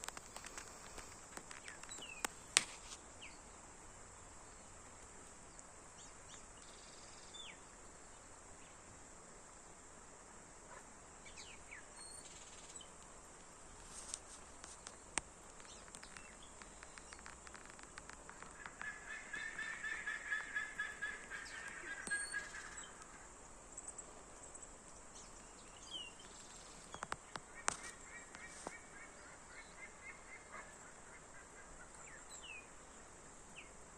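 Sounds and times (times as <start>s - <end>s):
steady high hiss: 0.0s - 33.9s
birds honking calls: 18.5s - 23.0s.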